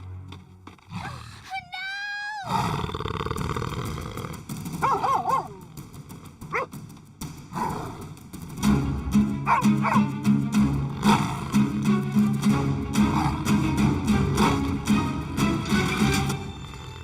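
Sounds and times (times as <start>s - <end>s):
cartoon animal growls: 10.9s - 11.7s.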